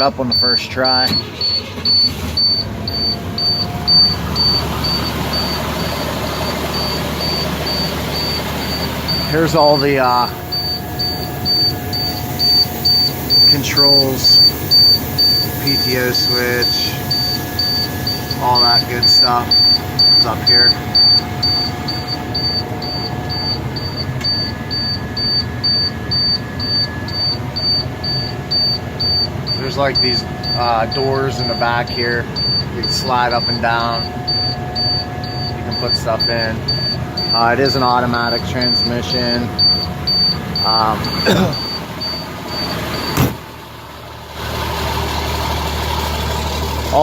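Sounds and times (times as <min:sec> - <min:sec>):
high-pitched warning beep: 0:00.0 - 0:43.2
truck engine running: 0:00.0 - 0:47.0.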